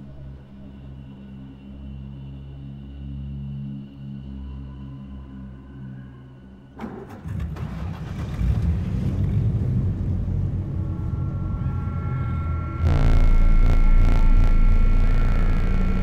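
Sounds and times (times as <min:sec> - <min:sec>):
steady engine whine: 0:06.8 - 0:16.0.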